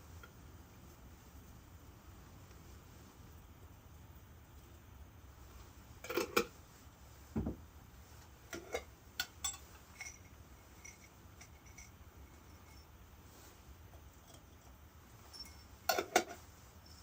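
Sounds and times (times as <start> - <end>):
dishes and utensils clinking: 8.5 - 12.9, 14.2 - 17.0.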